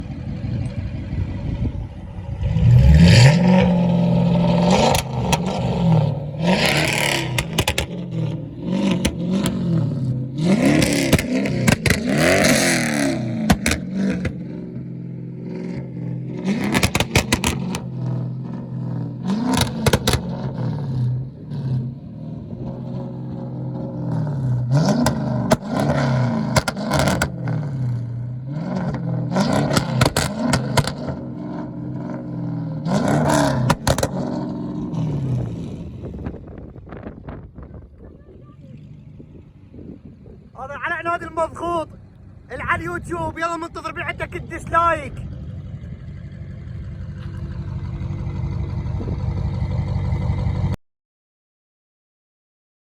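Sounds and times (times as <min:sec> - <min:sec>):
car engine revving hard: 0:00.0 - 0:36.6
exhaust crackles: 0:00.0 - 0:50.8.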